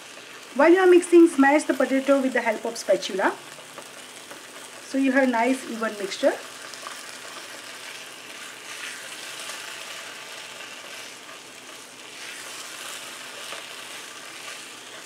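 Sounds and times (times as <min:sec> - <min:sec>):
food sizzling in oil: 0:00.0 - 0:15.0
spatula scraping pan: 0:06.6 - 0:15.0.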